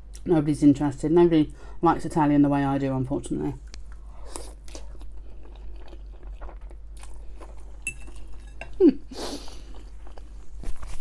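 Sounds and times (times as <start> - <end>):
close chewing and mouth sounds: 3.6 - 11.0.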